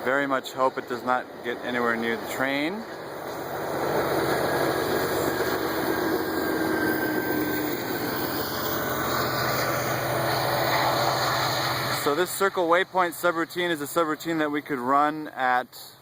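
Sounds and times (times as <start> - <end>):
low hum: 0.0 - 14.2
drone propellers whirring: 0.6 - 14.0.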